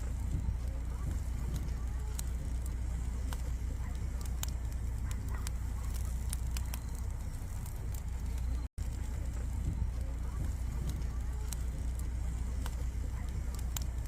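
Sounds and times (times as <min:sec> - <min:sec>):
campfire crackling and popping: 0:00.0 - 0:14.0
low rumble: 0:00.0 - 0:14.0.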